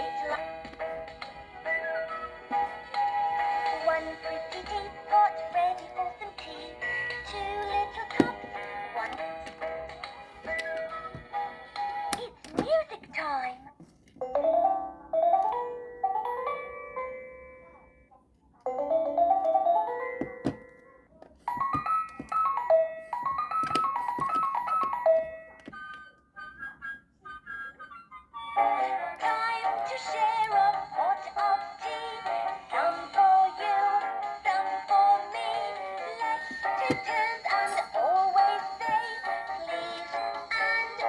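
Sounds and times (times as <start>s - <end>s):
toy speaker playing children's song: 0.0s - 13.5s, 23.1s - 41.0s.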